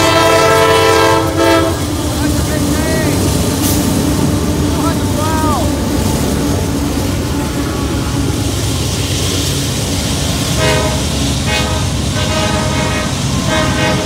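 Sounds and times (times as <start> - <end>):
train horn blasts: 0.0 - 2.0, 10.4 - 14.0
freight train rumbling past: 0.0 - 14.0.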